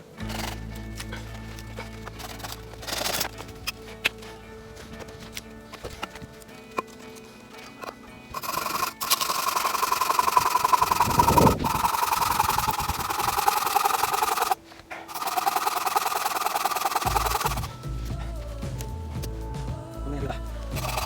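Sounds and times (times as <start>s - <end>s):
saw cutting firewood: 0.0s - 18.0s, 20.7s - 21.0s.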